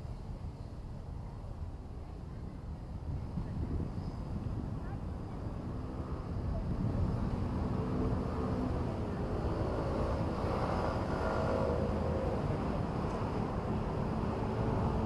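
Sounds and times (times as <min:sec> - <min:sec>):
passing vehicle rumble: 0:03.3 - 0:15.0.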